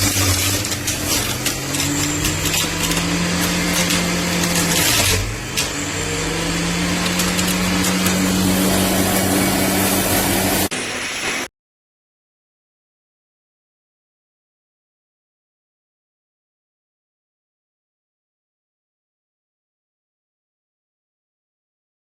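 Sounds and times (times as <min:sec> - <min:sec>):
juicer motor whirring: 0:00.0 - 0:10.7
crackling: 0:00.0 - 0:11.4.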